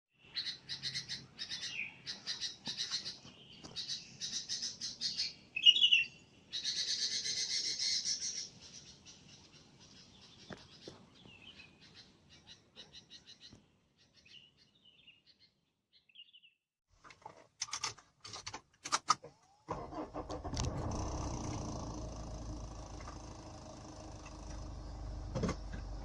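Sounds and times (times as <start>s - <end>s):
small birds chirping and trilling: 0.2s - 16.6s.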